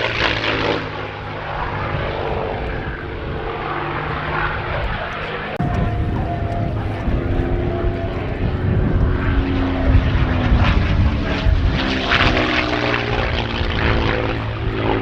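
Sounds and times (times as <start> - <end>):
propeller plane engine drone: 0.0 - 15.0.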